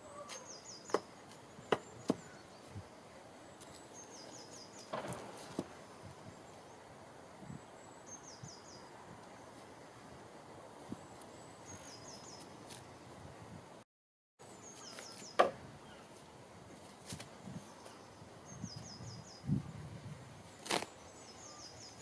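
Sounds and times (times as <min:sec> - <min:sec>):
small bird calling: 0:00.0 - 0:02.8, 0:14.6 - 0:16.2, 0:20.6 - 0:22.0.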